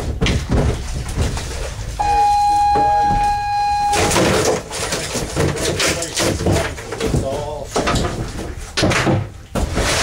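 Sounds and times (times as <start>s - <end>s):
clattering and knocks: 0.0s - 1.8s, 2.8s - 10.0s
steady high tone: 2.0s - 4.3s.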